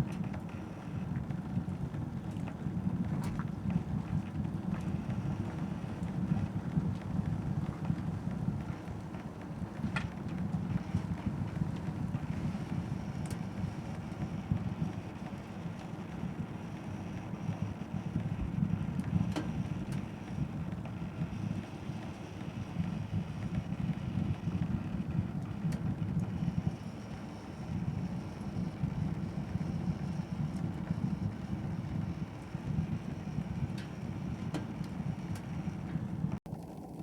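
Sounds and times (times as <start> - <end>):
low rumble of flames: 0.0 - 37.0.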